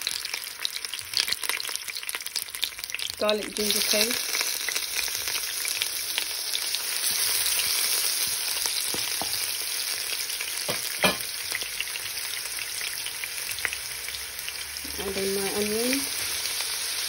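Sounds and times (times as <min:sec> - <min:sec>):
paste sizzling in hot oil: 0:00.0 - 0:17.0
spatula knocking pan: 0:08.9 - 0:09.4, 0:10.6 - 0:11.3.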